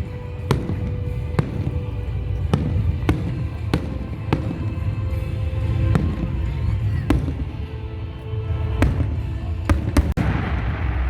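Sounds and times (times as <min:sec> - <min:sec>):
firework shells bursting: 0:00.0 - 0:07.8
low rumble of distant fireworks: 0:00.0 - 0:11.0
music playing: 0:00.0 - 0:11.0.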